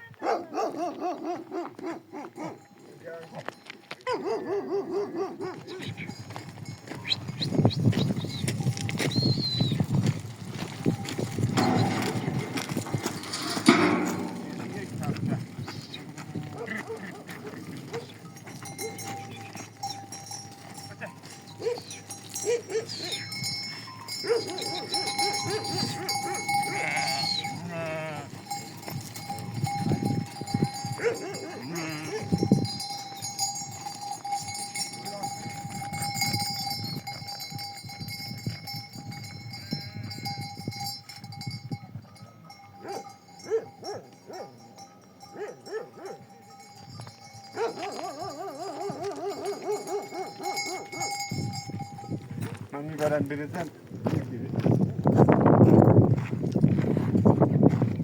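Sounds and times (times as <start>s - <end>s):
goat bells ringing: 2.0s - 4.4s, 5.4s - 58.0s
goats bleating: 25.7s - 28.4s, 31.4s - 32.2s.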